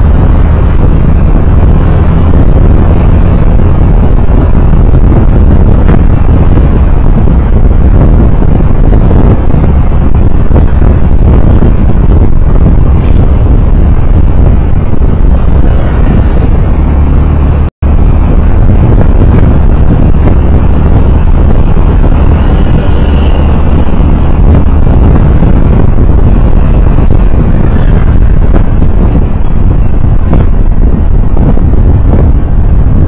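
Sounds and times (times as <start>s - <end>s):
vehicle rumble on road: 0.0s - 33.0s
wind noise on microphone: 0.0s - 33.0s.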